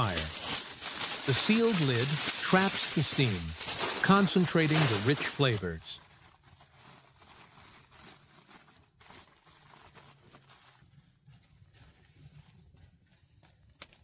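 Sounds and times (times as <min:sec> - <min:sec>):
coals crackling: 0:00.0 - 0:06.0.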